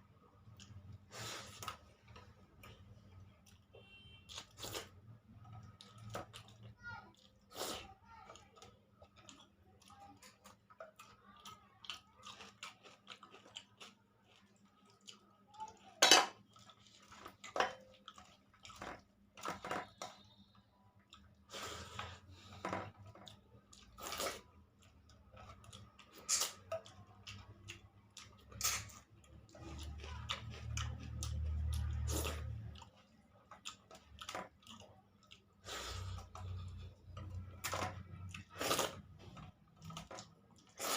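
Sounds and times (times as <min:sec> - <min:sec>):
person chewing: 0:00.4 - 0:15.8, 0:16.4 - 0:40.9.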